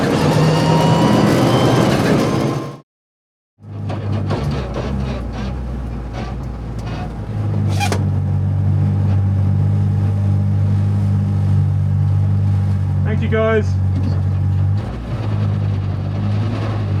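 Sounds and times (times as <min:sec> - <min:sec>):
rally car engine idling: 0:03.6 - 0:09.6.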